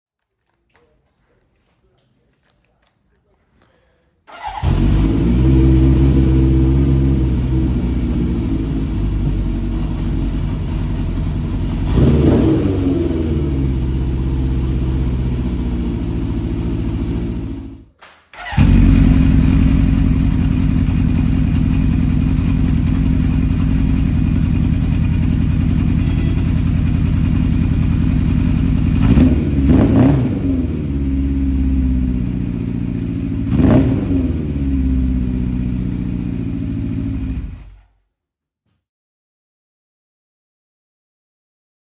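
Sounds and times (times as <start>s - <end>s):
motorcycle engine running: 4.4s - 37.8s.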